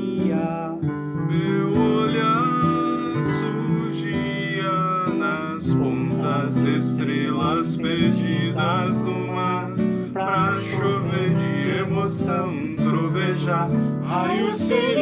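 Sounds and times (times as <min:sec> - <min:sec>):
acoustic guitar strumming: 0:00.0 - 0:15.0
choir singing: 0:05.8 - 0:15.0.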